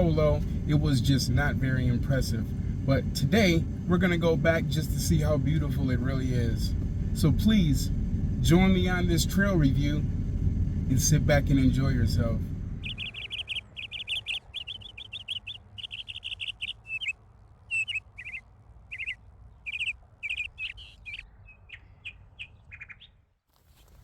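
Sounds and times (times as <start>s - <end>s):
low background rumble: 0.0s - 23.0s
songbird chirping: 0.0s - 24.0s.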